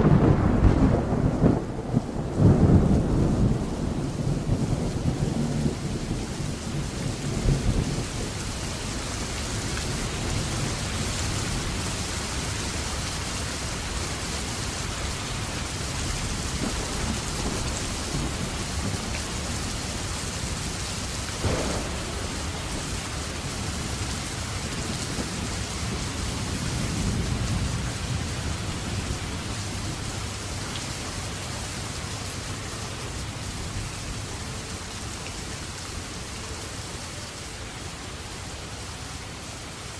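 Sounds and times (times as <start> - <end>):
thunder rolling: 0.0 - 8.9, 16.0 - 20.7, 21.4 - 30.4
steady rain falling: 0.0 - 39.9.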